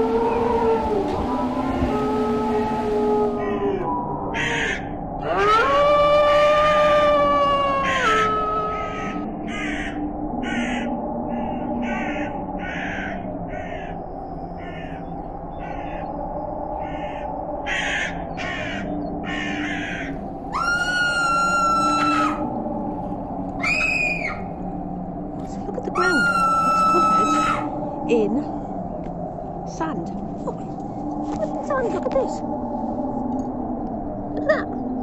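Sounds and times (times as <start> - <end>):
crows cawing: 4.4 - 4.9, 7.3 - 14.0, 14.6 - 16.2, 16.8 - 22.5.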